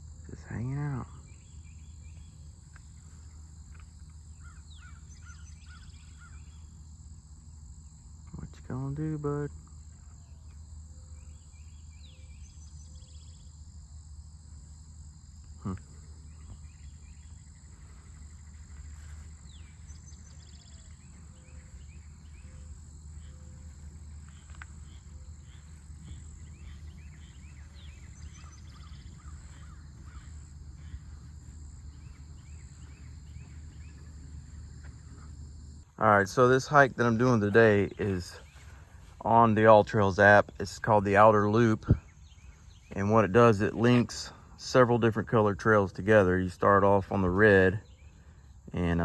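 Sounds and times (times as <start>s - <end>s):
birds chirping: 0.0s - 49.0s
insect drone: 0.0s - 49.0s
low rumble: 16.4s - 36.2s.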